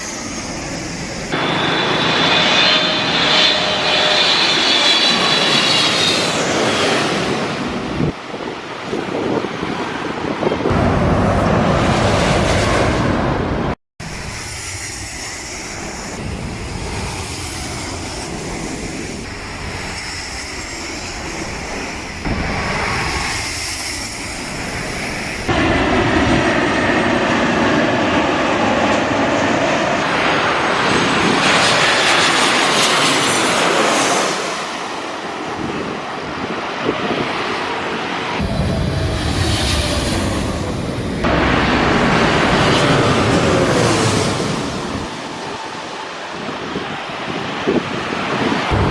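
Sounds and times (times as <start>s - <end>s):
faint high engine whine: 0.0s - 6.7s
jet plane passing: 0.0s - 48.9s.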